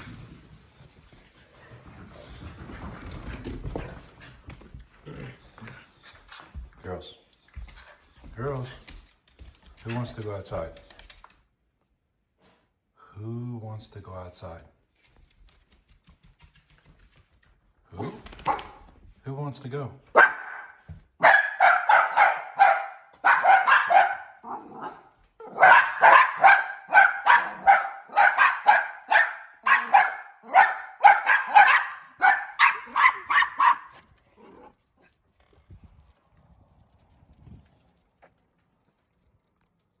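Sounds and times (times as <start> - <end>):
dogs yapping: 20.2 - 34.7.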